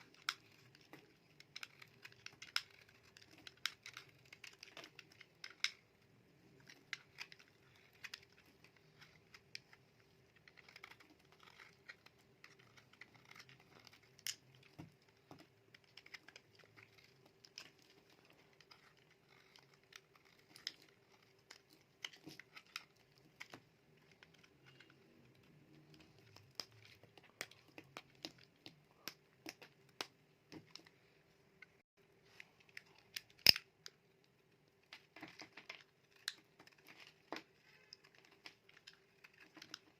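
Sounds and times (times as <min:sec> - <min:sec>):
knife cutting brittle soap: 0:00.0 - 0:30.7.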